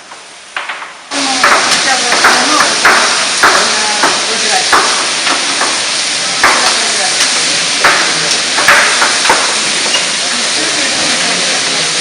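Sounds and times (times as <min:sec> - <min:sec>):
vegetables sizzling in oil: 0:00.0 - 0:12.0
sharp knocks: 0:00.6 - 0:05.8, 0:07.8 - 0:09.6.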